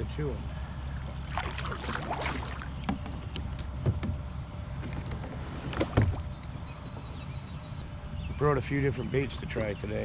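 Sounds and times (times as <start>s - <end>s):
water lapping: 0.4s - 3.4s.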